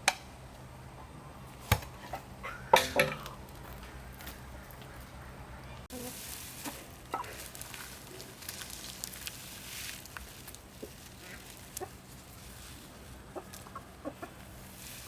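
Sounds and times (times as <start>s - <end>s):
chickens clucking: 2.0s - 7.6s, 10.8s - 14.8s.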